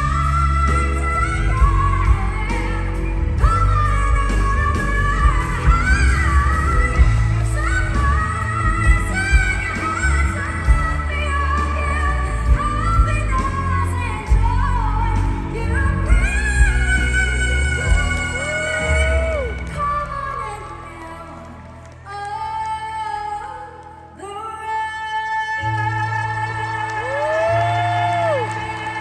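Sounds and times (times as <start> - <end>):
band accompaniment: 0.0 - 20.2
women singing pop ballad: 0.0 - 29.0.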